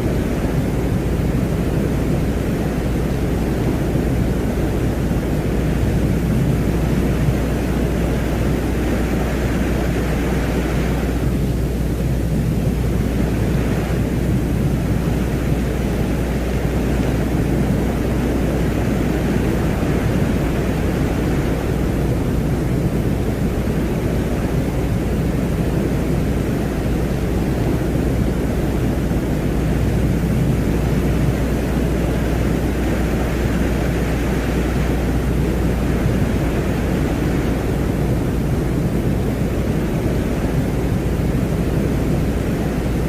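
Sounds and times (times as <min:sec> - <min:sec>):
low noise drone: 0:00.0 - 0:43.0
windlike hiss: 0:00.0 - 0:43.0.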